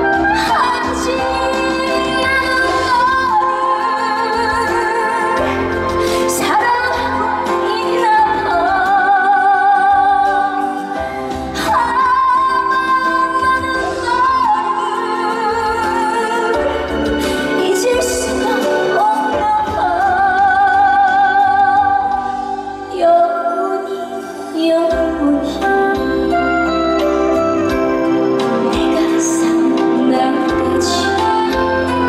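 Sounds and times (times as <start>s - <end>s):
backing music: 0.0s - 32.0s
woman singing: 0.0s - 32.0s.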